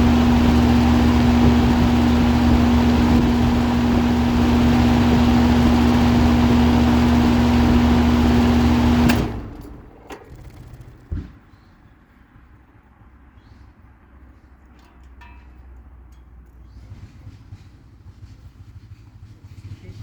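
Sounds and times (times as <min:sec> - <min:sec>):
air conditioner humming: 0:00.0 - 0:09.6.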